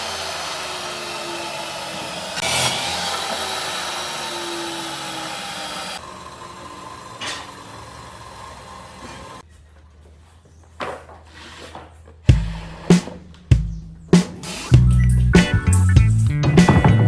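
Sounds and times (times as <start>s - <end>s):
power tool whirring: 0.0s - 9.4s.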